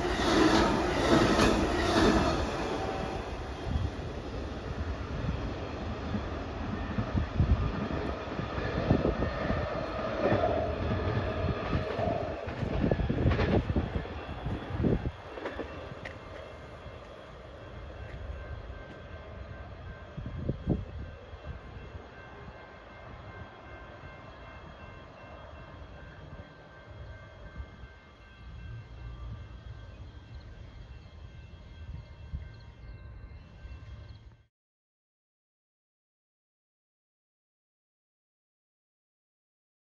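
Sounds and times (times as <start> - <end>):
train rolling on rails: 0.0 - 34.4
clanks and knocks from train wheels: 15.2 - 17.2.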